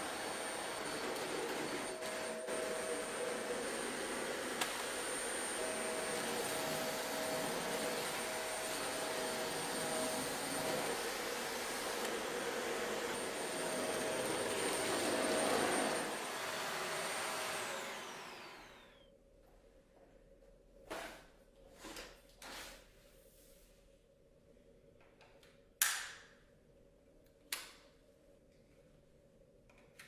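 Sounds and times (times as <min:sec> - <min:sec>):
vacuum cleaner running: 0:00.0 - 0:19.1
vacuum motor spinning down: 0:00.0 - 0:19.1.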